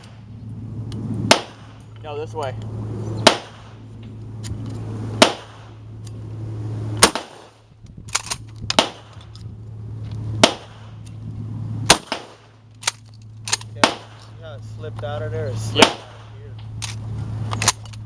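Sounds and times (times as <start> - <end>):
loud gunshots: 1.2 - 1.8, 3.2 - 3.8, 5.2 - 5.8, 7.0 - 7.6, 8.8 - 9.2, 10.4 - 11.0, 11.9 - 12.6, 13.8 - 14.4, 15.7 - 16.4
faint gunshot cracks: 5.2 - 5.7, 11.9 - 12.5.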